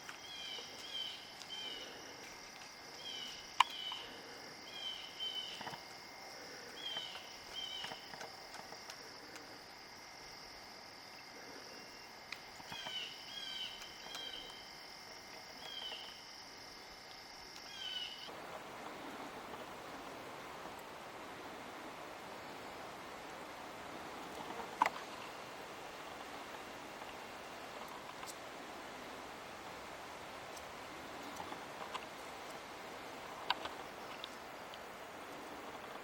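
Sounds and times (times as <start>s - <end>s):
insects droning: 0.0s - 36.0s
bird chirping: 3.0s - 5.8s.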